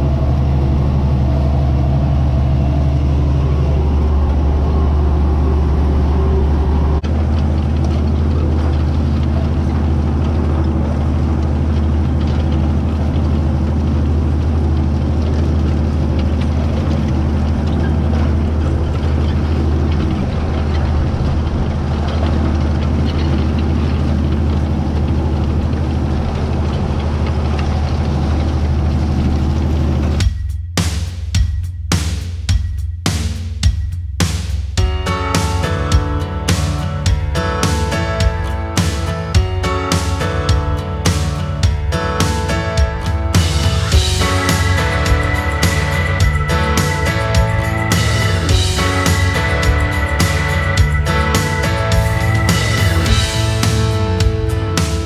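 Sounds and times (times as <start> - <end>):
tractor diesel engine running: 0.0 - 30.3, 34.8 - 55.0
drum-led music: 30.2 - 55.0.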